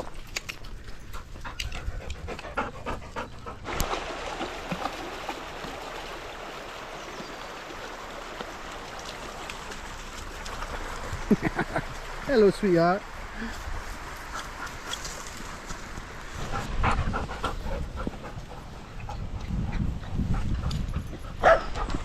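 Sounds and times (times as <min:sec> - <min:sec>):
dog panting: 0:01.0 - 0:03.6, 0:16.4 - 0:22.0.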